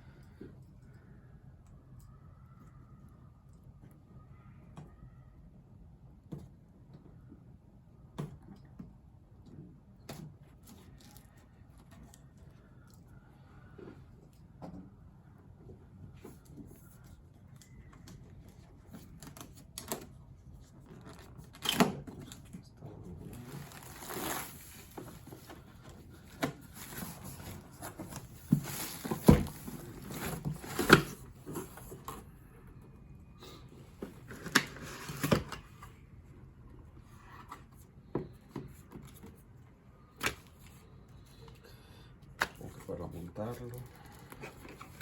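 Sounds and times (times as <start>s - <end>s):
packaging rustling: 23.3s - 32.0s.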